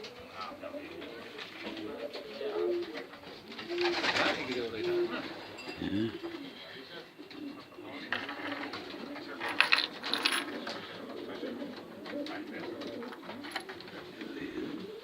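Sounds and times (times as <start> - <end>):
pigeons cooing: 0.0 - 15.0
sharp clatters: 8.1 - 10.8.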